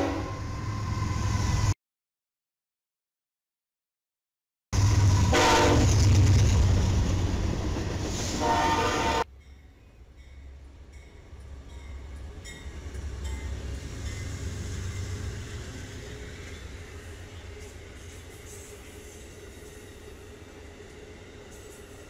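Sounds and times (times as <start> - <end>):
train horn blasts: 0.0 - 0.6, 5.2 - 6.0, 8.4 - 9.3
passenger train passing: 0.0 - 1.8, 4.8 - 22.0
diesel locomotive rumble: 4.8 - 22.0.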